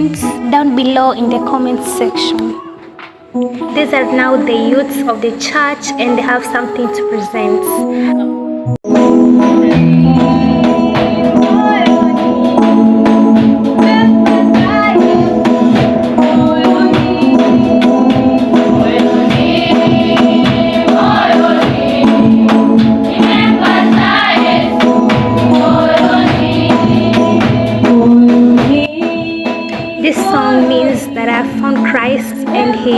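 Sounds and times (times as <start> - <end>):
keyboard chords: 0.0 - 32.9
steady beat: 8.8 - 32.9
choir singing: 9.6 - 12.6, 16.1 - 32.9.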